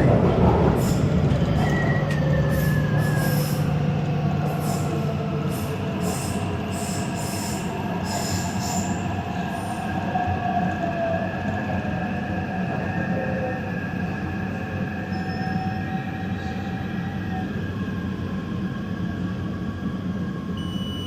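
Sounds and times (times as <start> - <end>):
wheels rumbling on rail: 0.0 - 20.6
high-pitched wheel squeals: 15.1 - 15.8.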